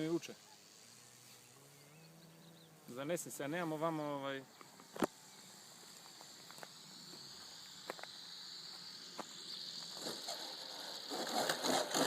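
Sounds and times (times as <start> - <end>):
model plane motor whine: 4.6 - 12.0.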